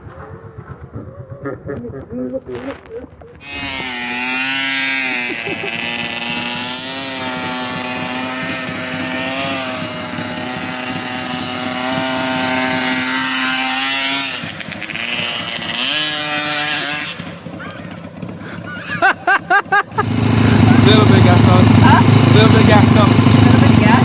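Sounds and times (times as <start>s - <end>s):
motorcycle engine running: 0.0s - 2.2s, 3.1s - 24.0s
wind or road noise hiss: 3.4s - 17.4s.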